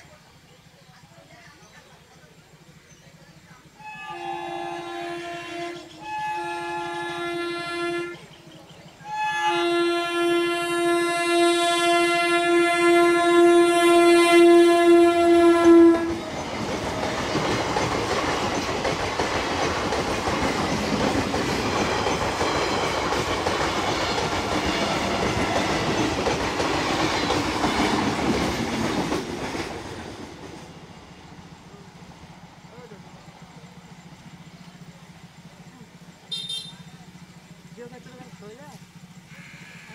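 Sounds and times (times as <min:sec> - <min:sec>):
train rushing past: 0:02.1 - 0:39.8
train horn blast: 0:03.8 - 0:08.4, 0:09.0 - 0:16.4, 0:36.3 - 0:37.0, 0:39.3 - 0:39.9.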